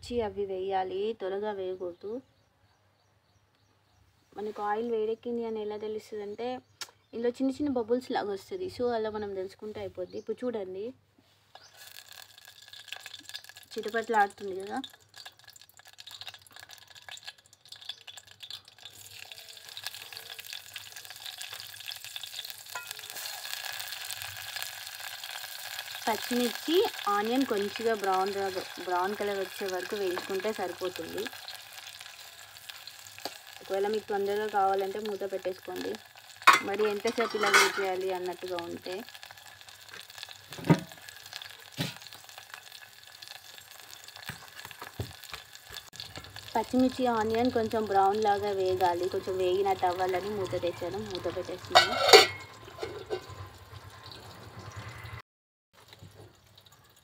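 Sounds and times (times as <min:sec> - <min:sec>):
chillies crackling in hot oil: 0:06.0 - 0:55.2, 0:55.8 - 0:57.0
onion sizzling: 0:11.4 - 0:55.2.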